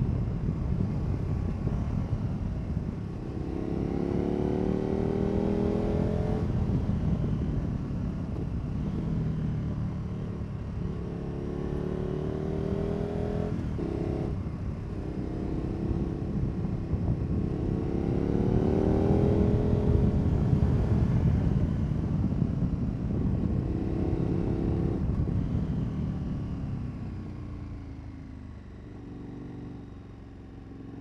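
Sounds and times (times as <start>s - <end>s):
wind rush: 0.0s - 9.1s, 12.4s - 25.8s
motorcycle engine accelerating: 0.0s - 31.0s.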